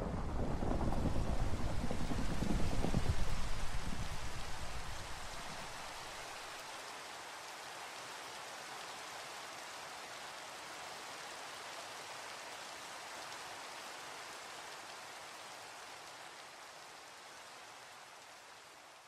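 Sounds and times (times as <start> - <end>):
low thunder rumble: 0.0 - 6.2
steady rain falling: 0.0 - 19.0.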